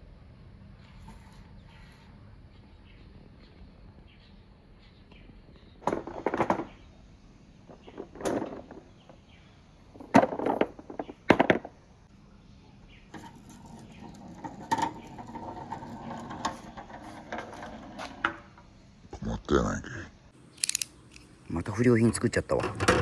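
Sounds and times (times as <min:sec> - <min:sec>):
marbles rolling rumble: 0:05.8 - 0:06.9, 0:07.6 - 0:09.2, 0:13.2 - 0:18.6.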